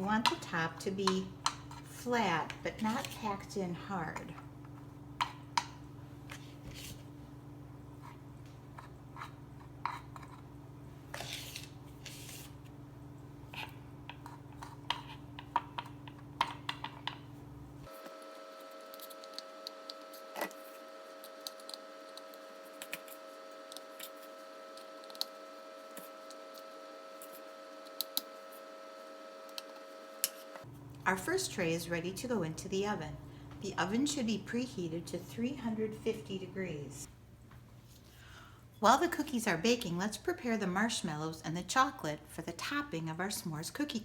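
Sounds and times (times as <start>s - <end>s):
low background hum: 0.0s - 44.0s
spoon scraping metal muffin tin: 1.0s - 3.6s.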